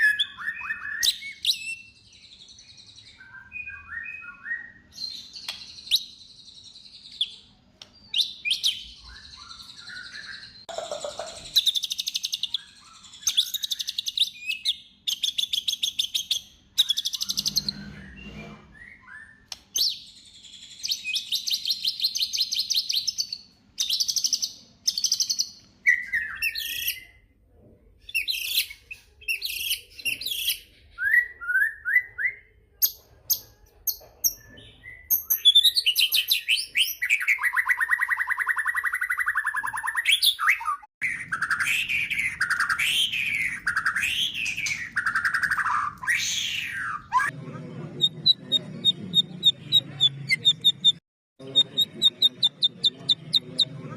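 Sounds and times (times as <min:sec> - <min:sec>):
bird singing trills: 0:08.0 - 0:27.1.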